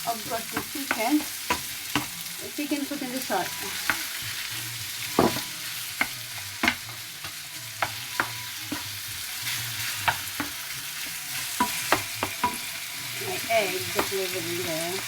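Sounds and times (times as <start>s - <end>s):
vegetables sizzling in a frying pan: 0.0s - 15.0s
spatula scraping a pan: 0.2s - 15.0s.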